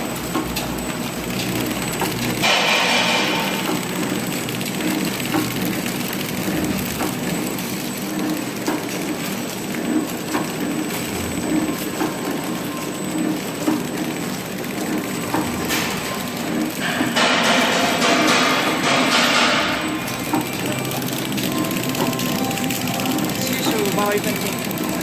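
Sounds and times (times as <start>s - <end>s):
light mechanical clicks and clacks: 0.0s - 25.0s
packaging machine hum: 0.0s - 25.0s.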